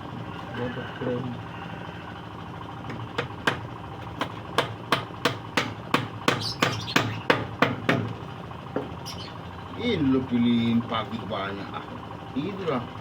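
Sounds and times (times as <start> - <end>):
hammer striking nail into wood: 4.2 - 8.1.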